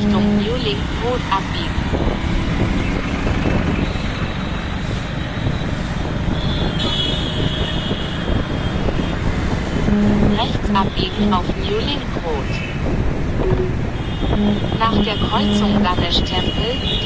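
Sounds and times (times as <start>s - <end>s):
high tone: 0.0s - 0.8s, 9.9s - 11.9s, 13.4s - 16.1s
traffic and road noise: 0.0s - 17.0s.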